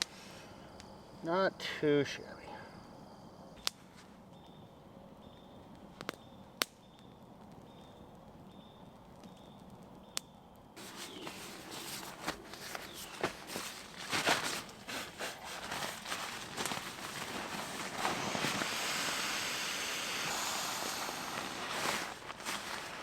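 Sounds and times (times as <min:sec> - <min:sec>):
faint insect trill: 0:00.0 - 0:23.0
campfire wood popping: 0:03.6 - 0:04.5, 0:05.3 - 0:23.0
leaves rustling and crunching: 0:10.8 - 0:23.0.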